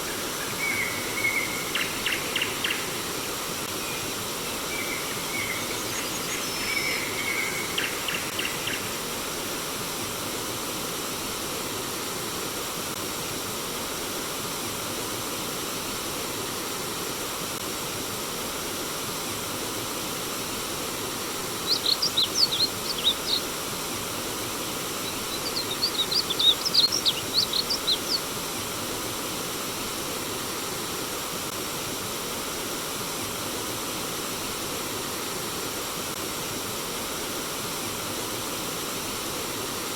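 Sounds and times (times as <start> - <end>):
flowing stream water: 0.0 - 39.9
songbird calling: 0.1 - 3.0, 3.8 - 8.9, 21.4 - 23.6, 24.8 - 28.3
rapid high chirps: 21.6 - 23.5, 24.8 - 28.3.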